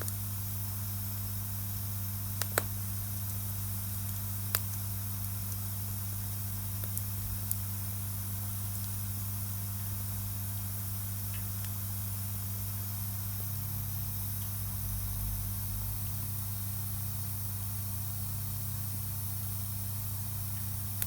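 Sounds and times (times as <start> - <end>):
campfire hissing and crackling: 0.0 - 13.4.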